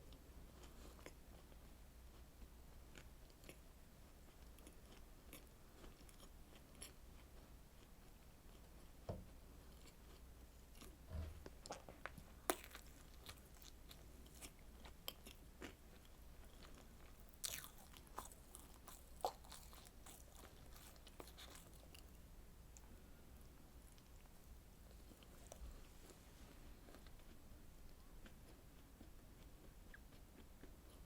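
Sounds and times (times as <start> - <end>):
wet biting and chewing: 12.5 - 15.8, 16.4 - 22.1.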